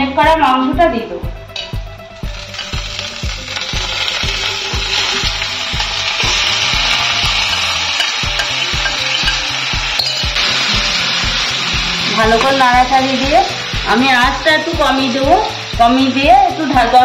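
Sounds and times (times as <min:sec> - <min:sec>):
background music beat: 0:00.2 - 0:17.0
metal spatula turning food: 0:01.5 - 0:10.6
chicken sizzling in hot oil: 0:01.6 - 0:17.0.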